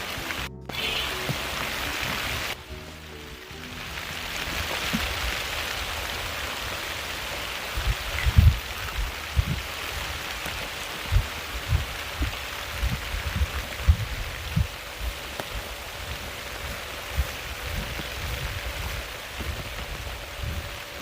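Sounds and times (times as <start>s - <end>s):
steady rain hissing: 0.0s - 21.0s
dull low thumps: 11.1s - 21.0s.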